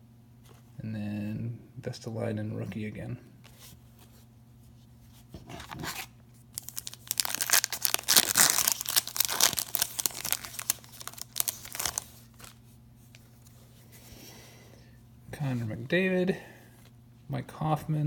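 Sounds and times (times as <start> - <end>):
card pack wrapper crinkling: 5.6 - 13.2.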